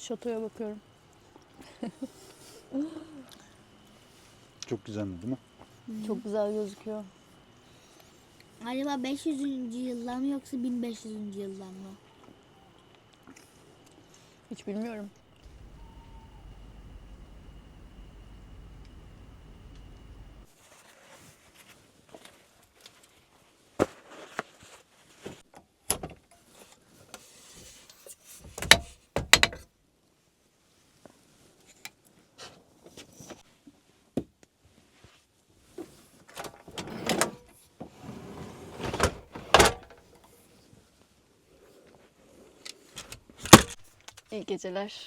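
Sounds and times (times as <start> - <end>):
doors and latches clicking: 15.4 - 20.5.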